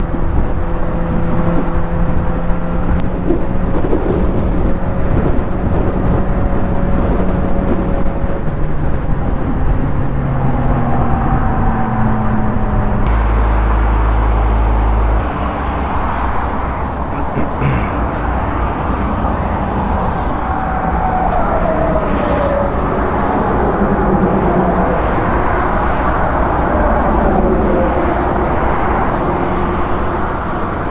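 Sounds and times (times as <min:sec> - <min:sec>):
wind rumble on microphone: 0:00.0 - 0:30.9
motorcycle engine running: 0:13.1 - 0:15.2.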